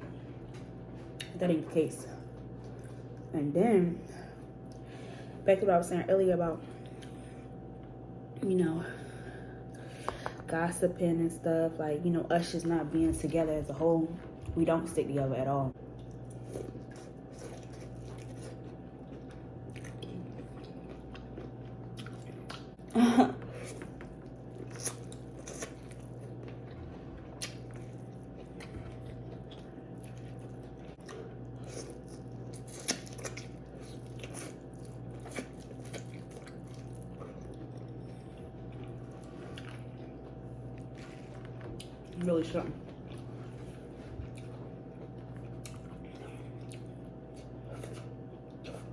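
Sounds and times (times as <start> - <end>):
steady low hum: 0.0 - 48.9
biting and chewing food: 15.8 - 48.9.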